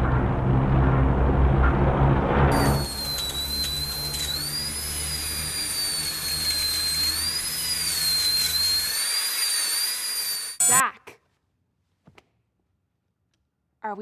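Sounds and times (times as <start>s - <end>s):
low rumble: 0.0s - 3.2s
wavering high-pitched tone: 2.5s - 10.8s.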